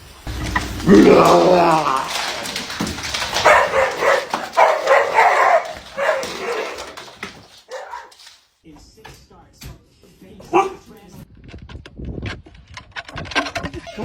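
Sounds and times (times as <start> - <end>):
dog vocalizing: 0.8 - 8.3.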